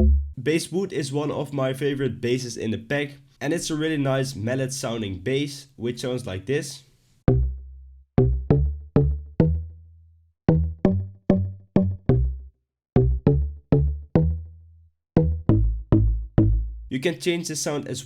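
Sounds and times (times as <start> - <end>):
synth bass plucked notes: 0.0 - 0.4, 7.3 - 16.9.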